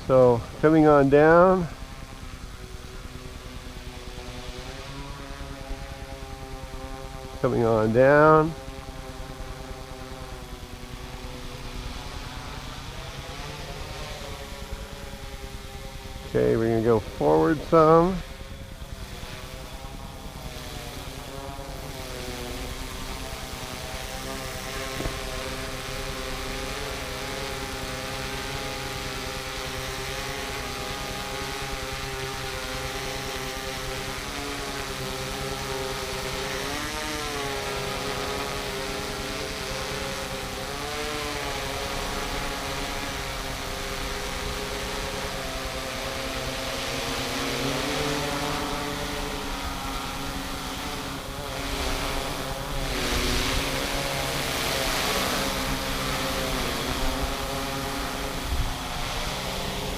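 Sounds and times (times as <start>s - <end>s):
drone propellers humming: 0.0s - 59.9s.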